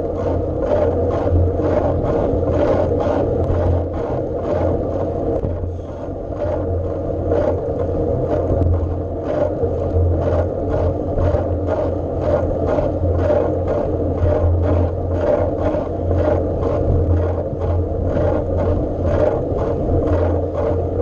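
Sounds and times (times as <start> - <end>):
bike ride rumble and wind: 0.0 - 21.0.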